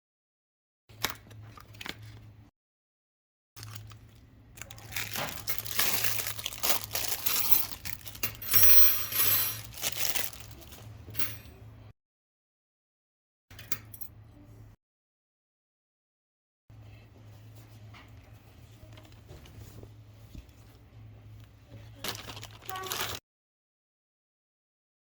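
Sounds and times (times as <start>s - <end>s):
plastic packaging crinkling: 3.6s - 8.4s, 9.0s - 11.0s, 21.9s - 23.2s.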